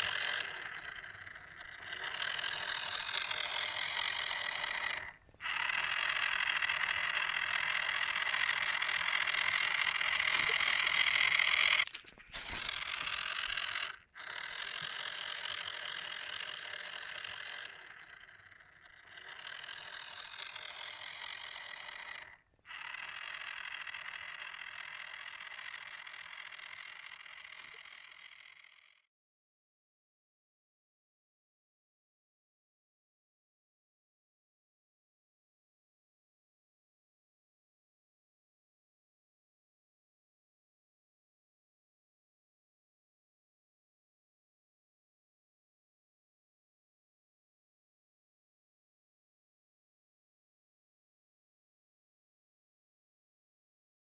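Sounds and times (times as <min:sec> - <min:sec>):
small electric motor whirring: 0:00.0 - 0:29.1.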